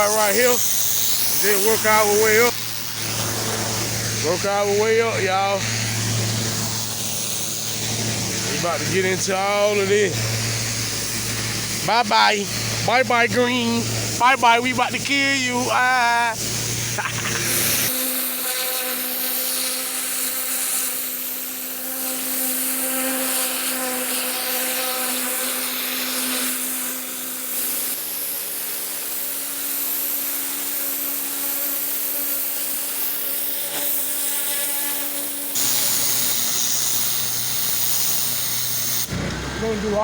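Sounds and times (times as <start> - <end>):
pressure washer machine hum: 0.0 - 18.5, 35.0 - 40.0
high-pressure water spray hiss: 0.0 - 39.1.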